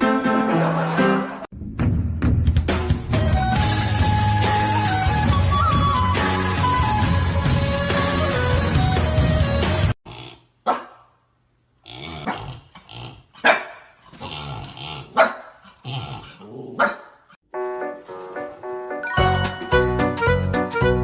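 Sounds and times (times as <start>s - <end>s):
dog barking: 10.6s - 11.2s, 13.4s - 14.0s, 15.1s - 15.6s, 16.2s - 17.4s
dog growling: 14.1s - 16.9s.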